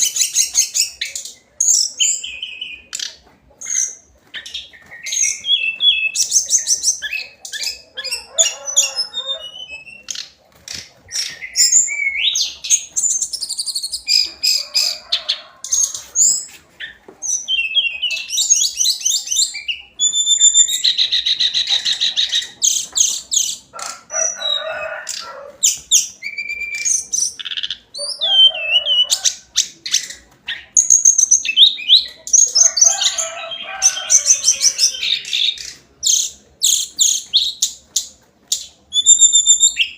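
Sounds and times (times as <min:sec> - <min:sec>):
bird singing whistles and trills: 0:00.0 - 0:03.0, 0:11.1 - 0:14.3, 0:17.2 - 0:21.6, 0:25.6 - 0:29.0, 0:38.6 - 0:39.9.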